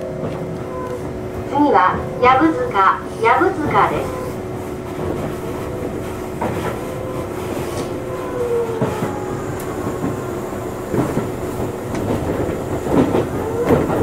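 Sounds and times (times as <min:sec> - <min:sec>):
electric train running hum: 0:00.0 - 0:14.0.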